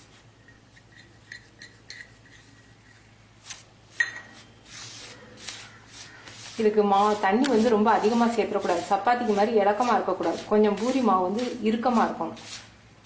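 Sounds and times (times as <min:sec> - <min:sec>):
flour being mixed: 0:03.4 - 0:12.8.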